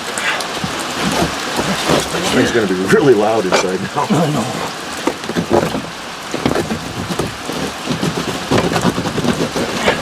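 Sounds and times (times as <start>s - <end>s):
carpet being torn out: 0.6s - 2.7s, 5.0s - 10.0s.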